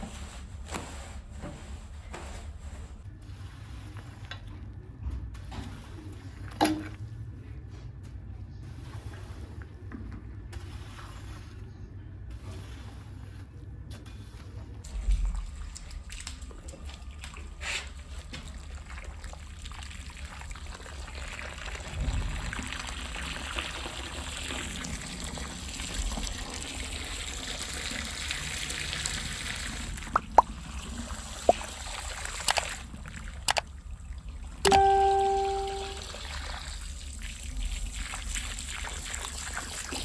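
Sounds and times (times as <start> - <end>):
low hum: 34.7 - 36.0.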